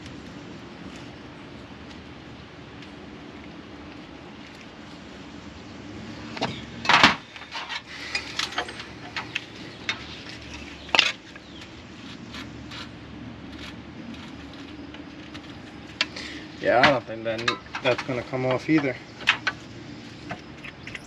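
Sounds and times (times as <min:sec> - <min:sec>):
steady low hum: 0:00.0 - 0:21.0
hand tools clinking against metal: 0:06.8 - 0:11.2, 0:16.8 - 0:19.6.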